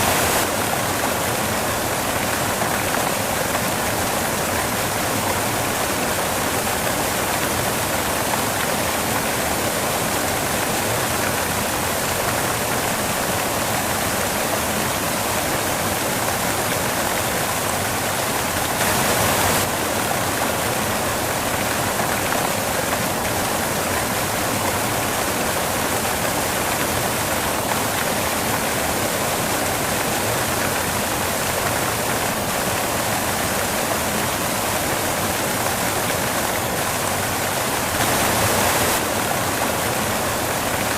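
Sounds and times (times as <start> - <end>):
white noise hiss: 0.0 - 40.9.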